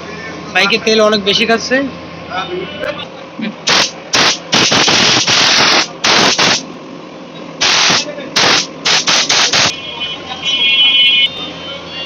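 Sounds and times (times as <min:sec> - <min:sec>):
hissing spray blasts: 0:03.7 - 0:06.7, 0:07.6 - 0:09.7.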